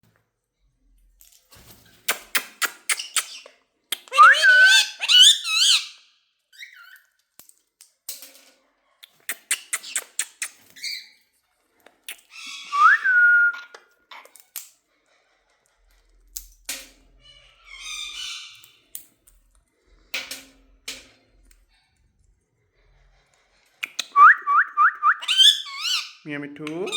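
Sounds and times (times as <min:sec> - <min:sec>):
parrot chirping: 0:02.1 - 0:07.0, 0:09.0 - 0:11.2, 0:17.6 - 0:18.8, 0:23.8 - 0:26.2
parrot loud rising whistles: 0:12.7 - 0:13.6.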